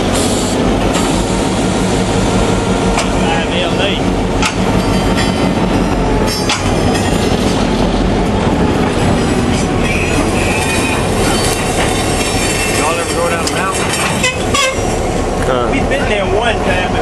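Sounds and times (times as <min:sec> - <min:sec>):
freight train running on track: 0:00.0 - 0:17.0
sharp rail clicks: 0:02.9 - 0:03.2, 0:04.3 - 0:14.6.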